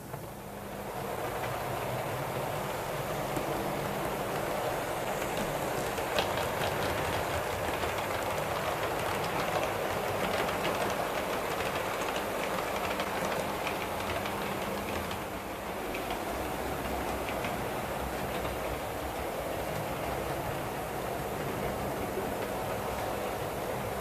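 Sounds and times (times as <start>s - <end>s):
train wheels clicking on rails: 0.0s - 24.0s.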